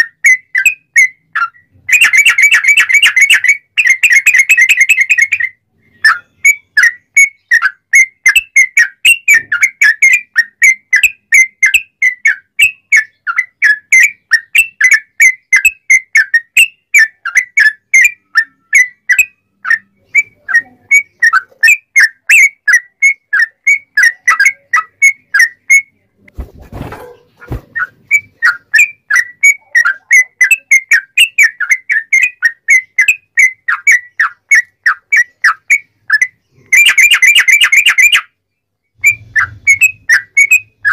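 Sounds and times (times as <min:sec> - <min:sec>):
bulbul whistling fast notes: 0:39.0 - 0:40.9.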